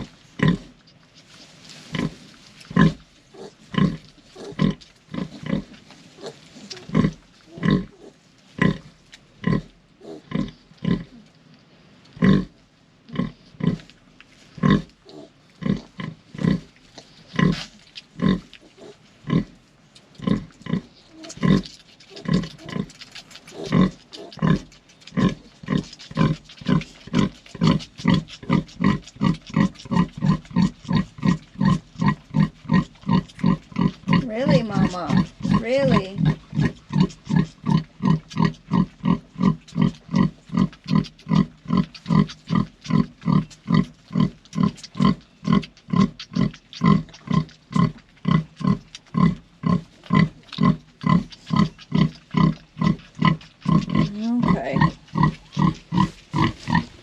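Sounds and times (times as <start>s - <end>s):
pig grunting: 1.9s - 11.3s, 14.6s - 16.7s, 17.3s - 19.6s, 20.2s - 57.0s.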